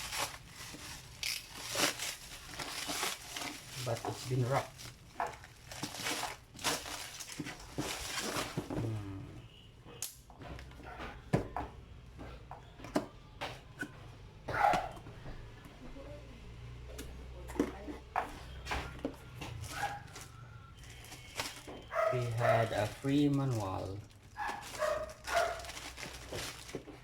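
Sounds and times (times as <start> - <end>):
plastic wrap rustling: 0.0 - 9.0, 17.6 - 27.0.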